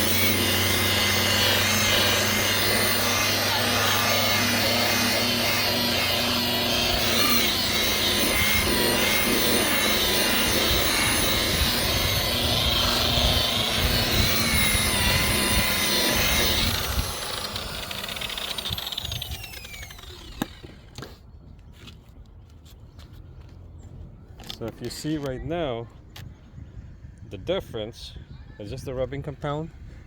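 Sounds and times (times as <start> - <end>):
polisher spinning down whine: 0.0 - 20.8
rotary polisher motor running: 0.0 - 21.1.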